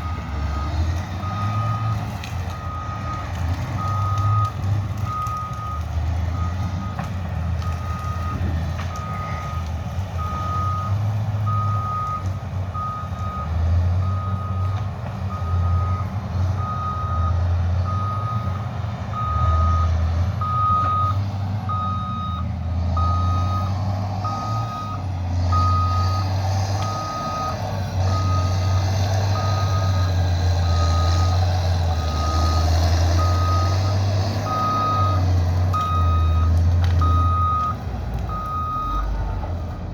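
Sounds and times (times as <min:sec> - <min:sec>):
diesel engine drone: 0:00.0 - 0:39.9
reversing alarm beeping: 0:07.6 - 0:39.2.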